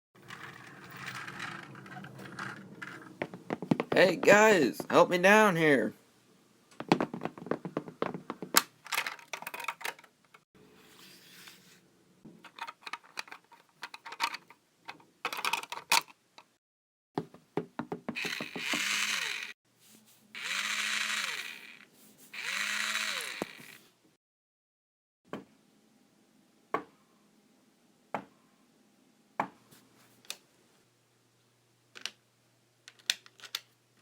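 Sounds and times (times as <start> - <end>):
hammering knocks and taps: 3.1 - 5.0, 6.8 - 8.6, 17.2 - 18.9
power drill whirring: 18.2 - 19.6, 20.4 - 23.9.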